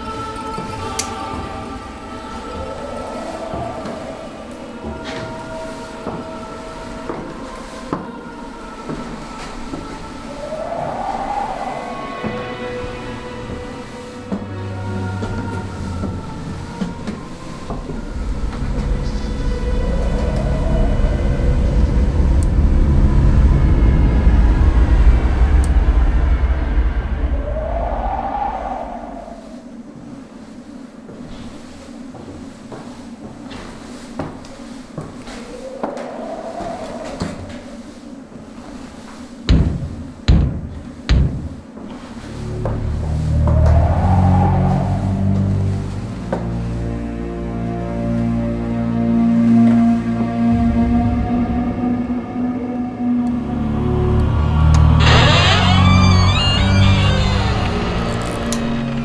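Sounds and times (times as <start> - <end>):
low rumble: 0.0 - 29.8, 49.8 - 59.0
heavy thuds: 39.5 - 41.8.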